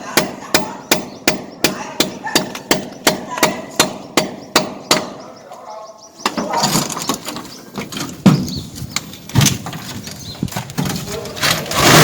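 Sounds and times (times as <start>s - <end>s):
hand tools knocking and scraping: 6.2s - 12.0s.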